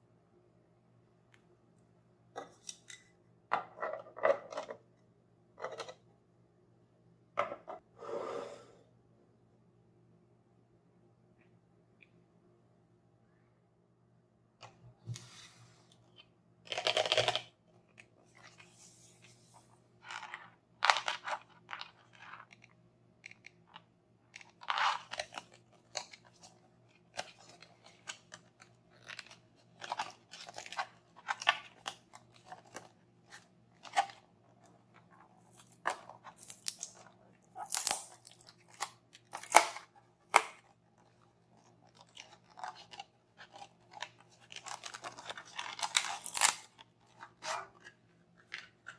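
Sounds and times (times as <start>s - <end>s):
toy packaging crunching: 35.5s - 39.8s, 42.0s - 46.7s.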